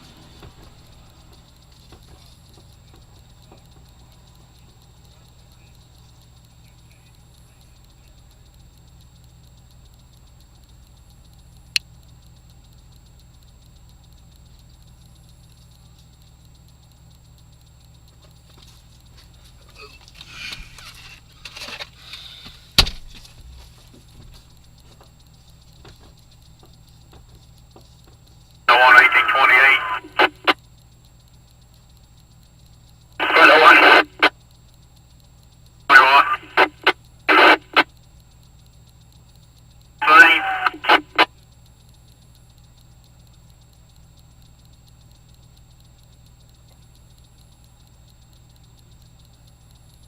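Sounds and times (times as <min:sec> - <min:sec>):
low steady hum: 0:00.0 - 0:50.0
faint clicks: 0:00.1 - 0:50.0.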